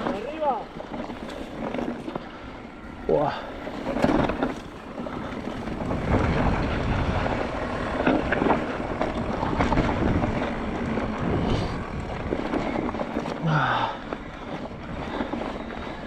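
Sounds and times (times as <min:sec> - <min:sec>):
bike rattling and knocking: 0:00.0 - 0:16.0
tyres rumbling on rough trail: 0:00.0 - 0:16.0
wind buffeting microphone: 0:00.0 - 0:16.0.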